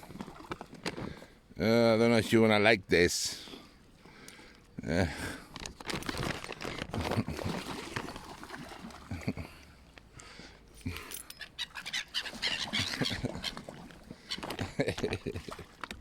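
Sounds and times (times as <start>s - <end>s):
gulls calling: 11.4s - 14.8s.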